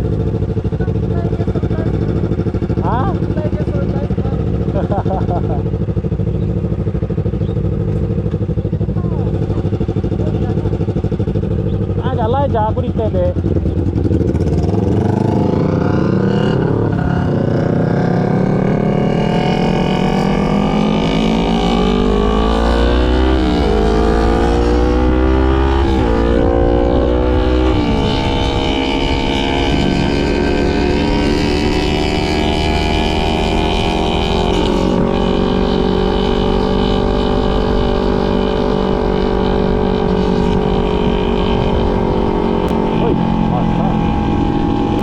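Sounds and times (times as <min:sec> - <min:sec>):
motorcycle accelerating through gears: 0:00.0 - 0:45.0
wind rumble on microphone: 0:20.0 - 0:45.0.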